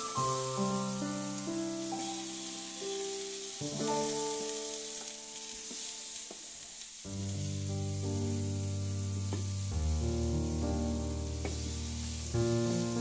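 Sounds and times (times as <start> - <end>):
soft background music: 0.0 - 6.4, 7.1 - 13.0
food sizzling in oil: 0.0 - 13.0.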